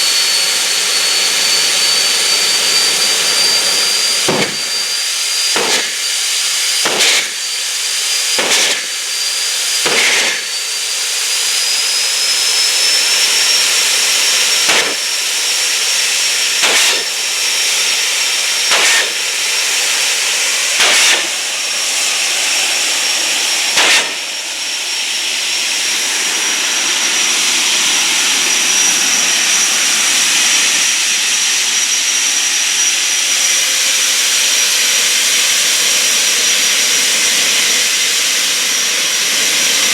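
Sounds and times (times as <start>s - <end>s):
turbine engine hiss and whine: 0.0s - 39.9s
sharp pops: 4.3s - 4.8s, 5.5s - 6.0s, 6.8s - 7.3s, 8.4s - 8.9s, 9.8s - 10.4s, 14.6s - 15.0s, 16.6s - 17.1s, 18.7s - 19.2s, 20.8s - 21.3s, 23.8s - 24.2s.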